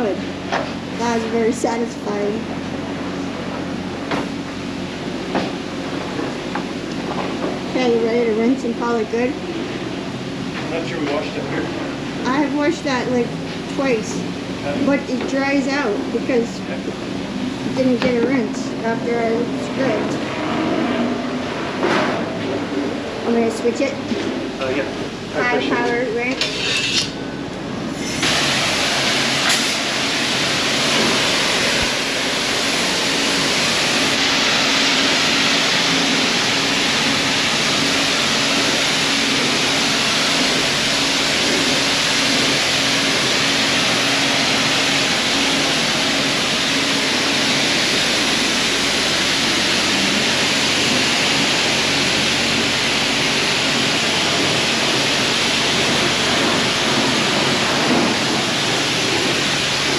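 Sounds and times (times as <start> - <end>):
pressure washer spraying water: 27.8 - 59.9.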